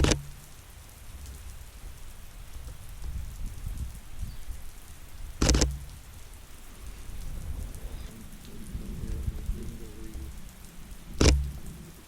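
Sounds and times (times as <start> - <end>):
rain falling on surfaces: 0.0 - 12.0
camera shutter click: 5.4 - 5.7, 11.2 - 11.4.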